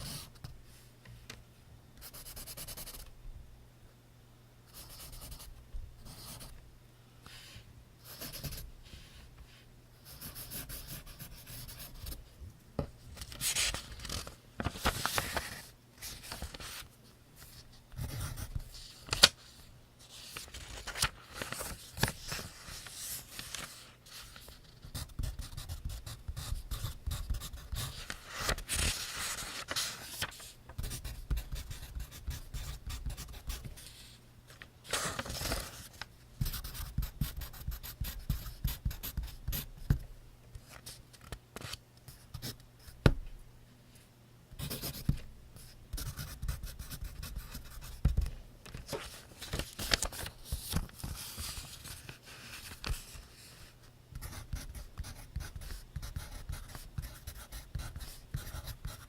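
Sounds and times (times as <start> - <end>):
pencil scratching on paper: 8.1 - 8.6, 10.0 - 12.2, 24.9 - 28.0, 30.8 - 33.9, 45.9 - 48.2, 54.2 - 59.0.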